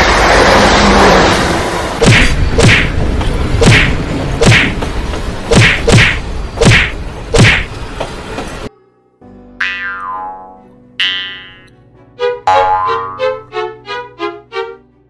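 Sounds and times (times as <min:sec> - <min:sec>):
steady rushing noise: 0:00.0 - 0:08.0.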